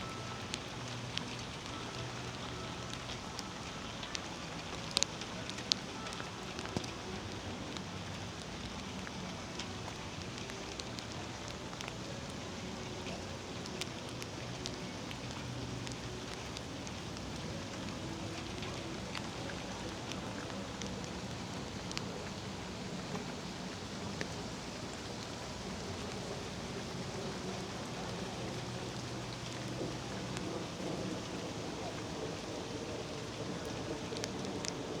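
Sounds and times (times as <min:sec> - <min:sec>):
raindrops ticking on surfaces: 0:00.0 - 0:35.0
steady rain: 0:00.0 - 0:35.0.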